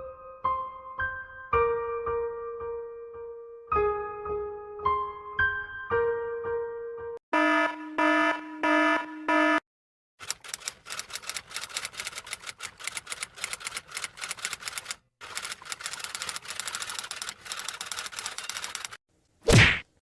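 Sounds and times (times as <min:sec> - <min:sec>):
typewriter keystrokes: 0:10.2 - 0:19.0.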